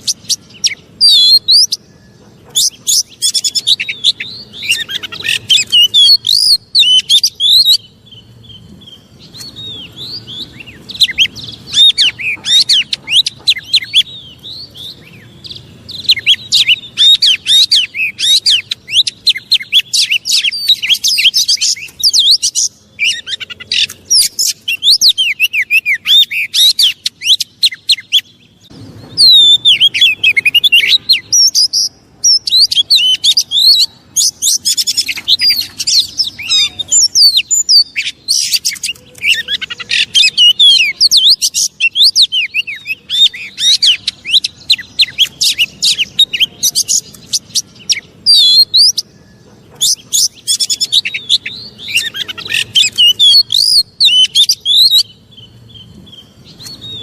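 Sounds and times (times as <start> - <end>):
bird chirping and whistling: 0.0 - 57.0.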